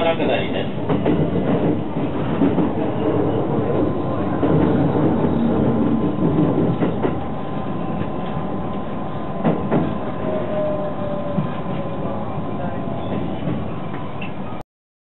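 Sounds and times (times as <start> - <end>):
wheel and rail noise: 0.0 - 14.6
wheels clacking over rail joints: 0.3 - 10.1.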